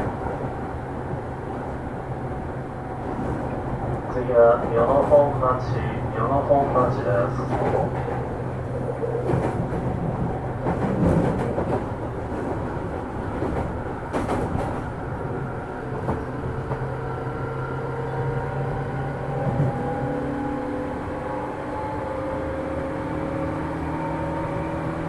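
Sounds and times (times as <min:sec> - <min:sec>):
train steady low hum: 0:00.0 - 0:25.0.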